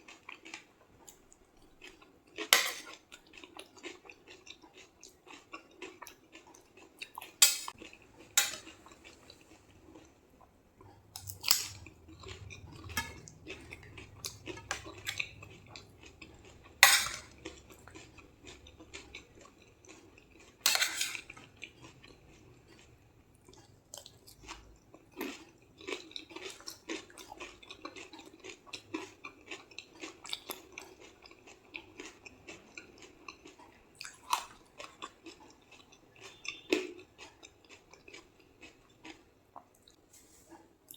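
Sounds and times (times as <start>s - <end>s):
chewing crackles: 0.0s - 40.0s.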